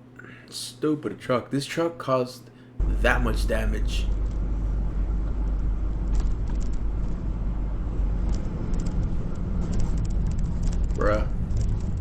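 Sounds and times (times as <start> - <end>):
vehicle driving low rumble: 2.8 - 12.0.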